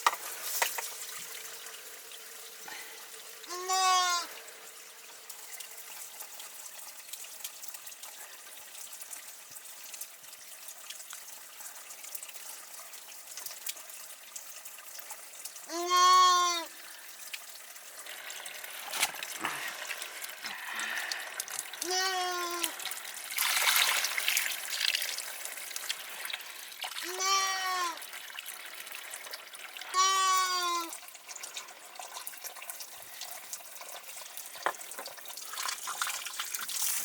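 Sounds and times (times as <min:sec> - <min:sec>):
water trickling: 0:00.0 - 0:37.0
sheep bleating: 0:03.5 - 0:04.3, 0:15.7 - 0:16.7, 0:21.8 - 0:22.7, 0:27.0 - 0:28.0, 0:29.9 - 0:30.9.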